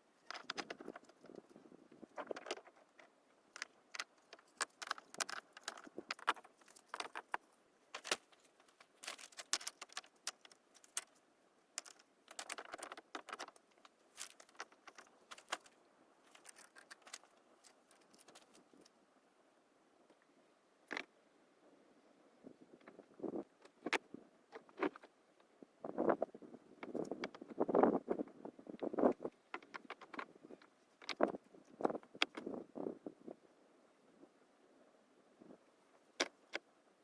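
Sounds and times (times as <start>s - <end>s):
hard objects clicking and clinking: 11.8s - 13.6s.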